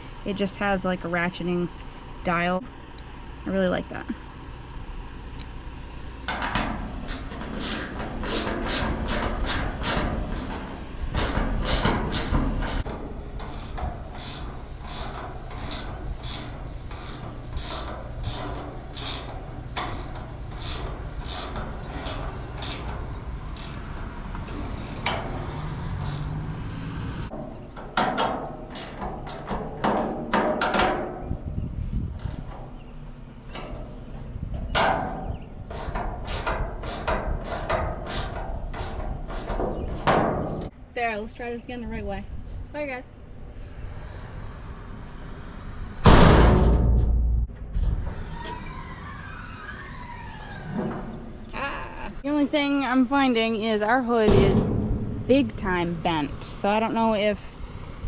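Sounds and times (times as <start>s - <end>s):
ratcheting wrench clicking: 6.3s - 25.4s, 26.0s - 26.4s, 28.7s - 29.5s.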